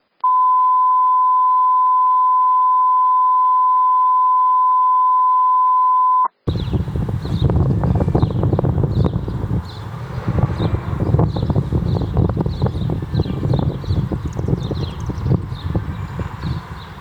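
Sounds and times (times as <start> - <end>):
steady test tone beep: 0.2 - 6.4
wind buffeting microphone: 6.5 - 17.0.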